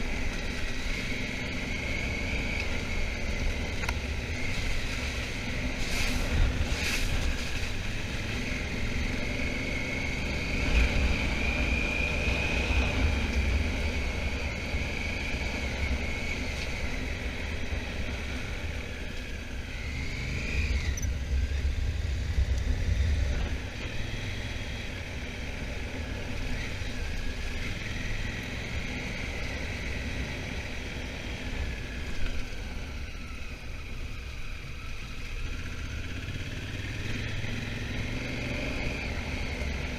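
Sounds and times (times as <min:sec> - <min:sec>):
wind rumble on microphone: 0:19.8 - 0:24.9.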